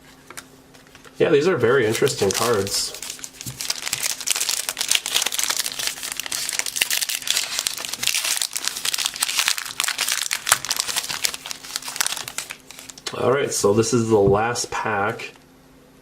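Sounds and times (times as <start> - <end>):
plastic wrapper crinkling: 0.2 - 13.2
sharp wrapper crackle: 1.7 - 13.1.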